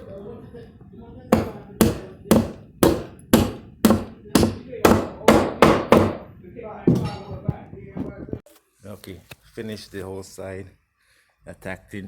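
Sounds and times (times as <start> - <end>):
hammer driving nails into wood: 1.4 - 6.2.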